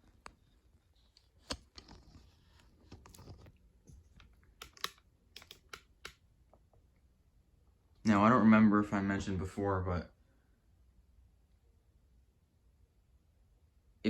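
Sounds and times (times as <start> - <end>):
faint clicks and taps: 0.0 - 7.1.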